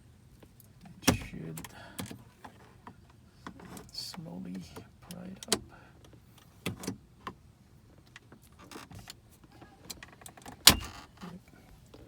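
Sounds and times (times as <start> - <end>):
plastic trim clicks and creaks: 8.0 - 12.0.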